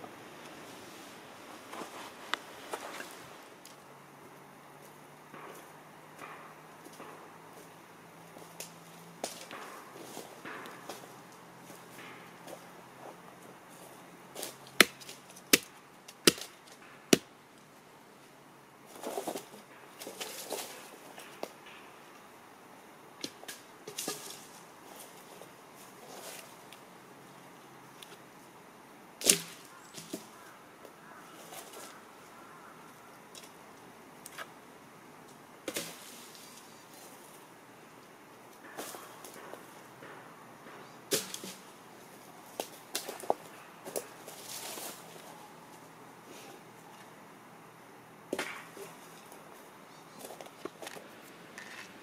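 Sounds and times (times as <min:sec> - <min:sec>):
axe chopping firewood: 0:14.7 - 0:17.3, 0:29.2 - 0:30.3, 0:38.7 - 0:41.7, 0:48.3 - 0:48.9
axe blade striking wood: 0:14.8 - 0:16.5, 0:41.1 - 0:41.6, 0:48.3 - 0:48.7.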